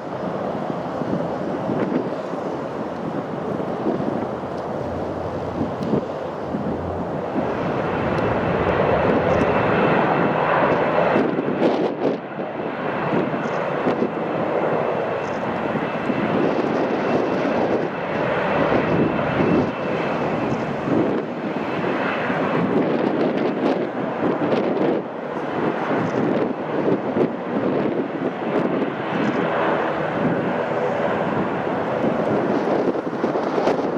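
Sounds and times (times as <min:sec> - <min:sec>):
jet engines running: 0:00.0 - 0:33.9.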